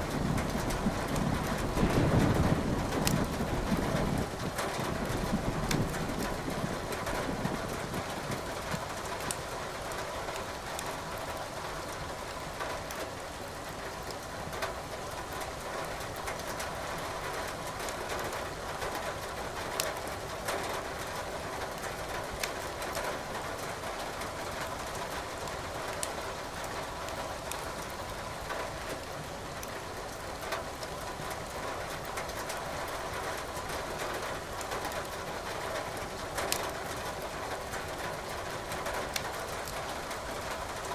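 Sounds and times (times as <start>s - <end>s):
firewood crackling: 27.0s - 27.7s.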